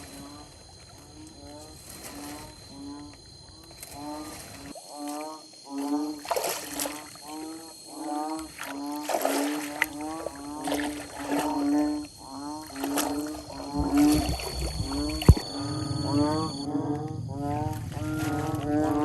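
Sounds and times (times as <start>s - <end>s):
low rumble: 13.1s - 19.0s.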